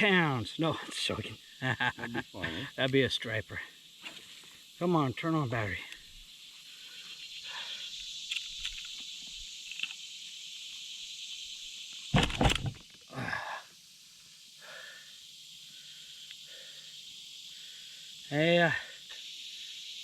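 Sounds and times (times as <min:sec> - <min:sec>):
high-pitched insect buzz: 0:03.9 - 0:20.0
loud knock: 0:12.2 - 0:12.8.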